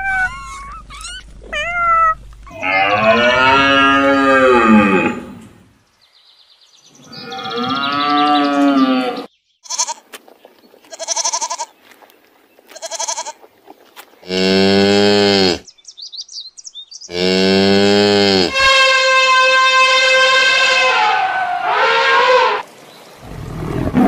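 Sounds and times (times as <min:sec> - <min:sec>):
long bellowing call: 0:00.0 - 0:05.5, 0:07.0 - 0:10.0, 0:17.1 - 0:22.6
cow mooing: 0:02.5 - 0:05.6, 0:07.1 - 0:09.9, 0:14.2 - 0:15.6, 0:17.1 - 0:22.6
goat bleating: 0:08.4 - 0:10.1, 0:10.8 - 0:11.8, 0:12.7 - 0:13.5.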